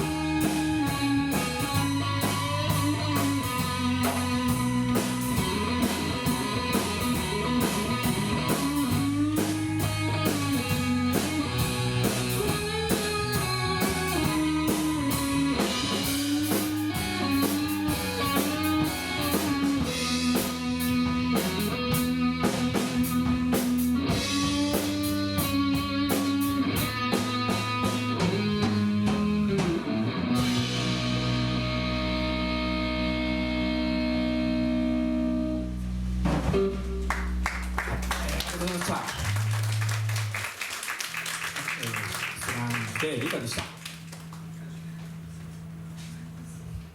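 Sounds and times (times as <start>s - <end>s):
rock band playing: 0.0s - 45.8s.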